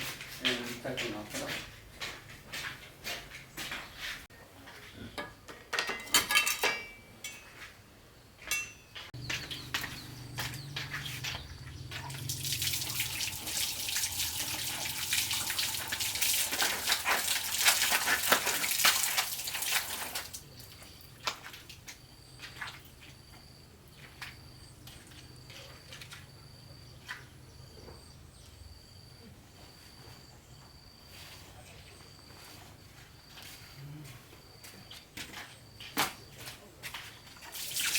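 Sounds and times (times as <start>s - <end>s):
insects chirping: 9.2s - 37.9s
water running and splashing: 10.7s - 21.8s, 37.4s - 37.9s.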